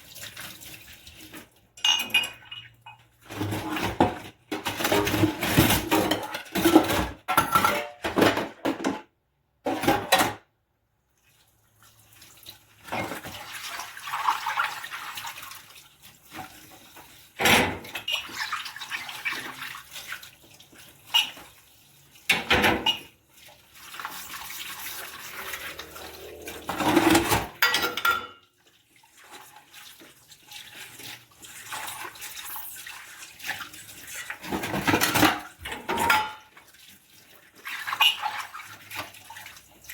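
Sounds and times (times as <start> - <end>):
tap water running: 0.0 - 5.6, 11.1 - 39.9
dishes and cutlery clattering: 1.8 - 9.0, 9.7 - 10.4, 21.1 - 21.5, 22.3 - 23.1, 24.8 - 28.5, 34.4 - 36.6.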